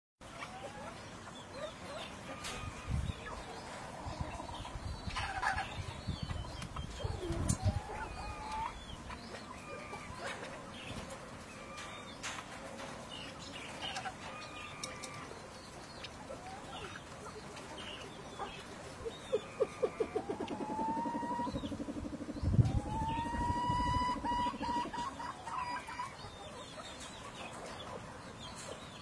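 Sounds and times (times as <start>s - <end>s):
birds chirping and whistling: 17.7s - 27.9s.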